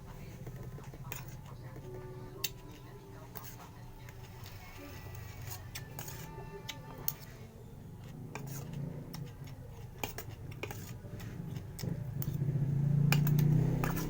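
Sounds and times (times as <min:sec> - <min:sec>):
utensil clicking on plate: 0:08.0 - 0:14.0.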